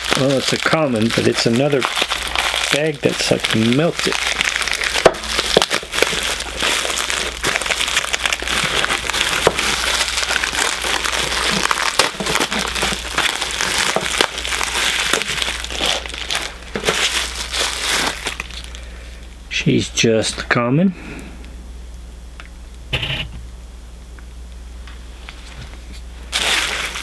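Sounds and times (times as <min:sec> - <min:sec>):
plastic bag crinkling: 0:00.0 - 0:19.3, 0:25.2 - 0:27.0.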